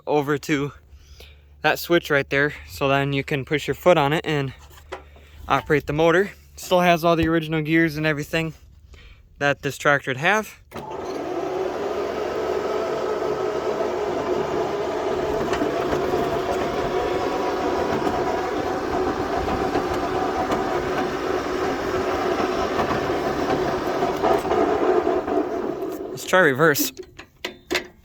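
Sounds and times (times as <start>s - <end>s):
electric motor whining: 10.8s - 26.4s
gear rumble: 12.8s - 27.4s.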